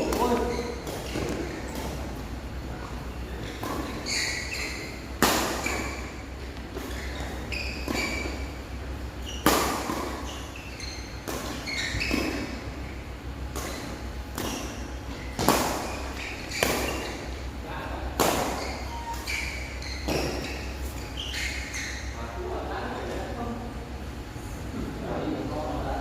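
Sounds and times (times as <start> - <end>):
shoes squeaking on court floor: 0.0 - 17.6, 18.2 - 23.4
rackets hitting shuttlecock: 3.4 - 8.6, 9.2 - 10.4, 13.5 - 17.3, 18.1 - 19.3.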